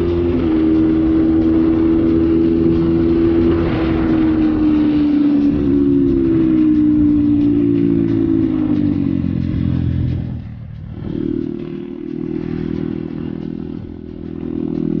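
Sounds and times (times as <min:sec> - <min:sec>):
wind rush on microphone: 0:00.0 - 0:08.6
dirt bike engine: 0:00.0 - 0:15.0.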